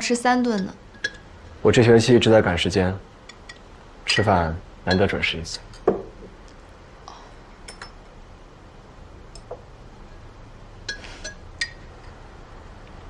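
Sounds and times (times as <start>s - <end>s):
dishes and glass clinking: 0.6s - 1.3s, 3.3s - 6.4s, 7.6s - 8.1s, 10.8s - 12.2s.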